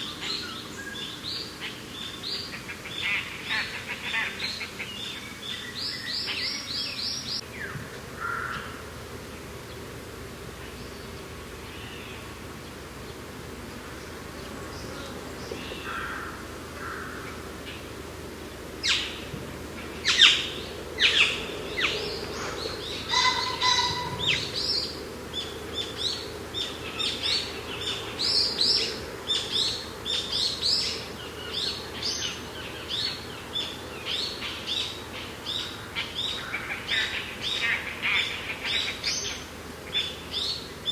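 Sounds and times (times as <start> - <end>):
small birds chirping: 0.0 - 7.8, 18.8 - 40.9.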